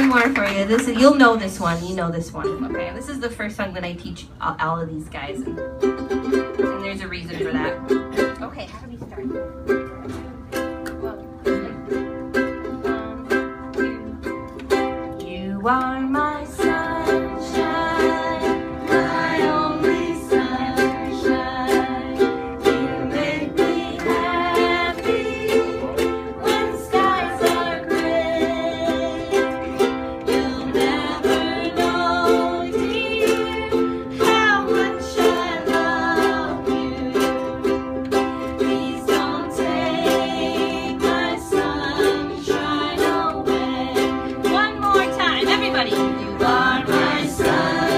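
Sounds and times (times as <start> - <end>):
ukuleles strumming: 0.0 - 4.3, 4.9 - 47.9
voices singing: 15.4 - 47.9.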